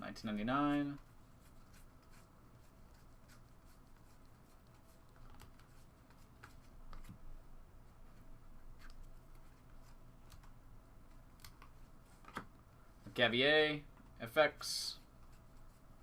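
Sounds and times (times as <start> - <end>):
faint room hum: 0.0 - 16.0
trading cards being flipped: 4.0 - 7.2
soft clicks and rustles: 4.5 - 13.1.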